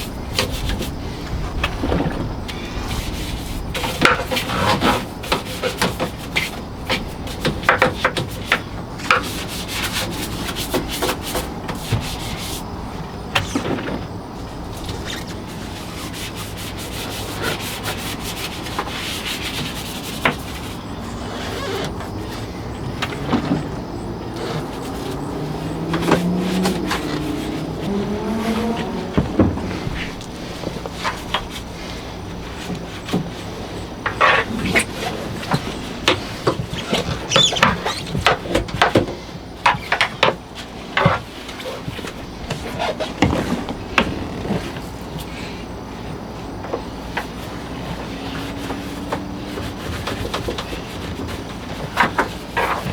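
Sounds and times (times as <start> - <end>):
brush scraping and knocking: 2.9 - 12.8, 14.7 - 39.0, 47.2 - 52.9
brush scrubbing: 15.0 - 31.8
short squeak: 36.8 - 38.1.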